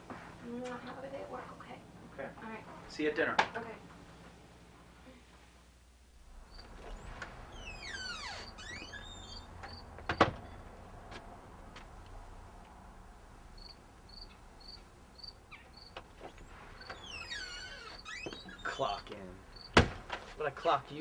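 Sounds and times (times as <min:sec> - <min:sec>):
birds chirping: 0:13.6 - 0:19.8.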